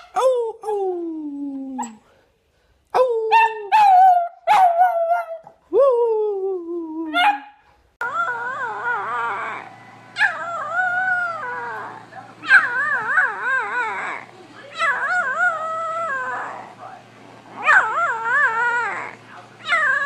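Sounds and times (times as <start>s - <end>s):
puppy yelping and howling: 3.3s - 5.5s, 8.0s - 16.7s, 17.5s - 20.0s.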